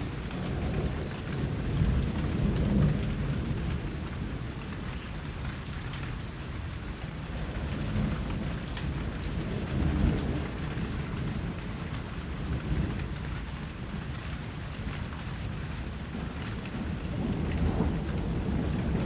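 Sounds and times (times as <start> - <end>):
distant thunder rumble: 0.0 - 4.9, 7.2 - 13.3, 15.9 - 19.0
steady rain falling: 0.0 - 19.0.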